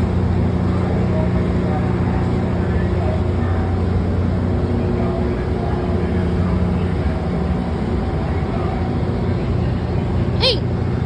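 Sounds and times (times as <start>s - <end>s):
diesel locomotive engine running: 0.0s - 11.0s.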